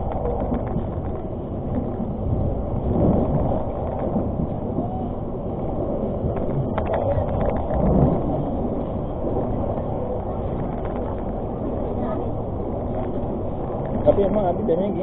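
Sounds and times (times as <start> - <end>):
passenger train rumbling: 0.0 - 15.0.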